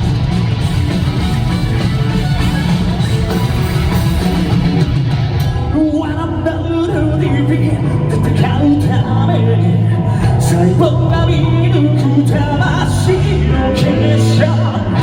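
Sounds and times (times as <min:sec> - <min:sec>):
bass guitar: 0:00.0 - 0:15.0
distorted electric guitar: 0:00.0 - 0:15.0
drums: 0:00.0 - 0:15.0
person singing: 0:05.6 - 0:15.0.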